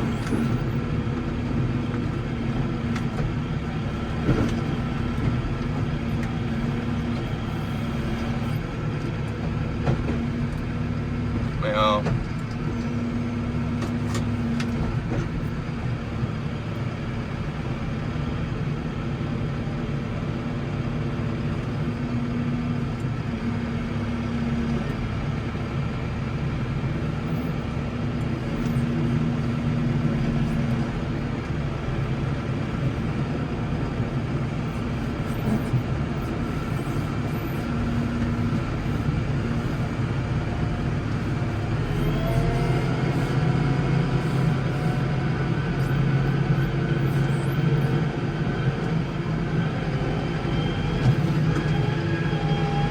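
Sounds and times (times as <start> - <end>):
tractor engine droning: 0.0 - 52.9.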